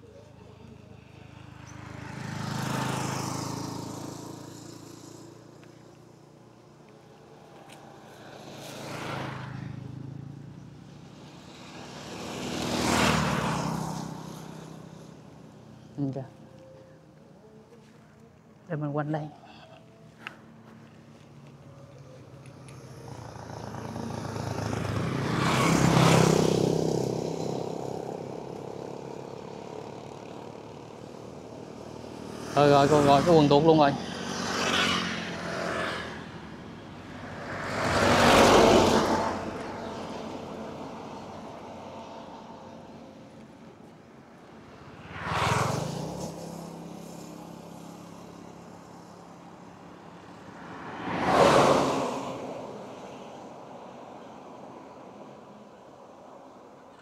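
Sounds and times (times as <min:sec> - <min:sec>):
motor vehicle passing by: 0:00.0 - 0:17.9, 0:18.7 - 0:57.0.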